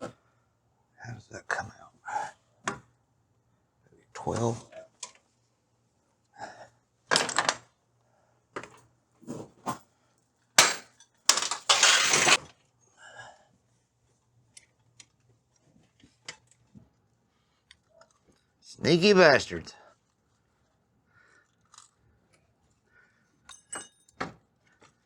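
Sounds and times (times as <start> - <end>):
tools and metal parts clinking: 10.6 - 12.4, 23.4 - 24.3.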